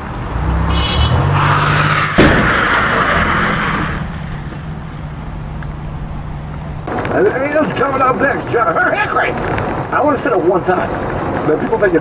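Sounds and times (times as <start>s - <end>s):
car engine and road noise: 0.0s - 12.0s
sudden bang: 2.1s - 3.2s.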